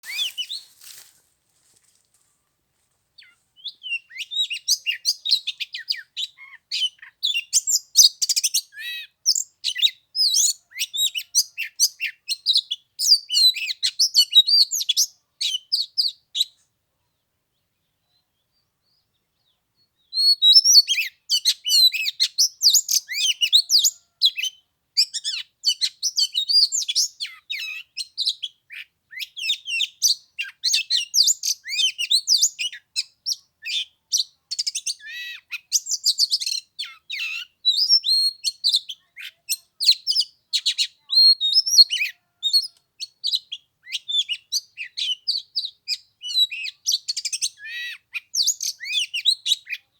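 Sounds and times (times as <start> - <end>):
bird singing: 0.0 - 0.8.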